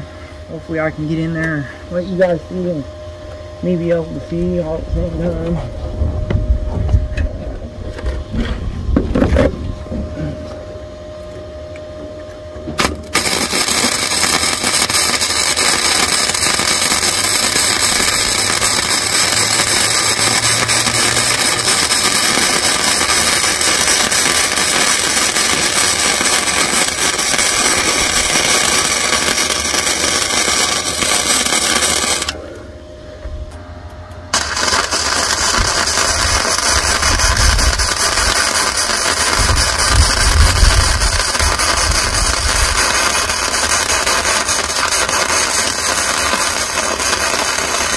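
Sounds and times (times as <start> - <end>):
welding arc crackling: 12.8 - 32.4, 34.3 - 47.9.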